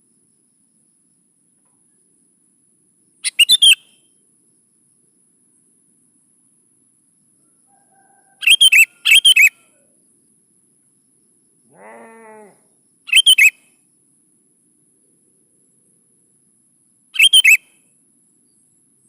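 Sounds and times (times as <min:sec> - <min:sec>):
bird singing bubbly phrases: 0:11.7 - 0:13.5
bird drawn-out call: 0:11.7 - 0:13.6.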